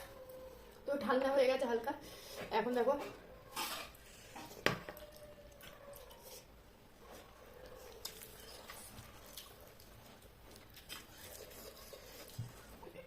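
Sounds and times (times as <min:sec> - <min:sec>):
person chewing: 0:04.5 - 0:12.8.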